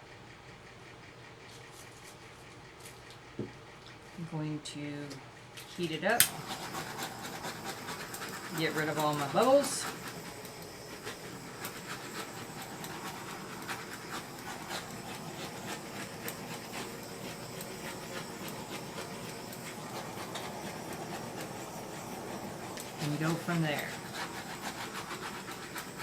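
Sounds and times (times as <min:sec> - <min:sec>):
faint motor hum: 0:00.0 - 0:26.0
heat gun blowing: 0:06.1 - 0:26.0.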